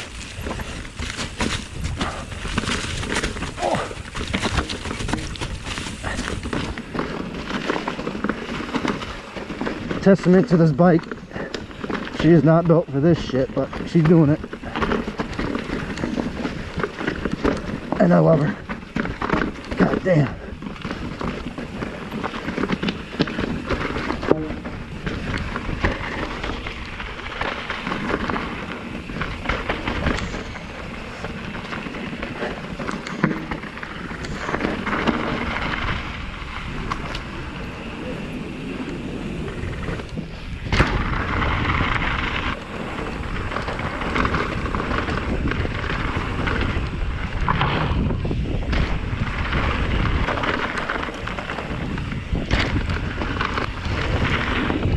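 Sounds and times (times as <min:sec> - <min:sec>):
wind on microphone: 0:00.0 - 0:11.5, 0:27.9 - 0:54.9
bike rattling: 0:00.0 - 0:54.9.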